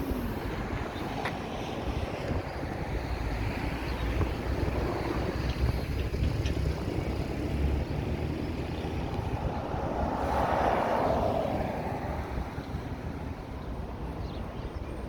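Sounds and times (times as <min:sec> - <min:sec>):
street traffic rumble: 0:00.0 - 0:15.0
vehicle passing close: 0:03.5 - 0:13.4.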